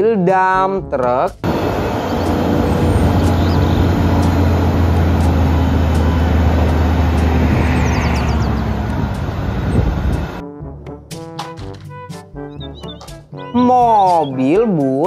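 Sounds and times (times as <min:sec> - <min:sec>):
diesel truck engine running: 0:01.4 - 0:10.4.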